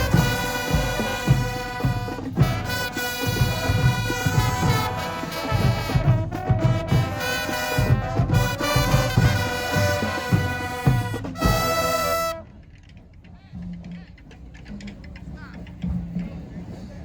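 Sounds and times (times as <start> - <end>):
drum hits: 0.0 - 12.4
marching band playing: 0.0 - 17.0.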